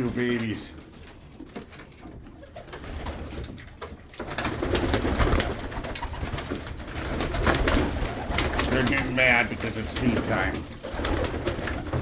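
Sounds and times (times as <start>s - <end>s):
pigeons cooing: 4.3s - 12.0s.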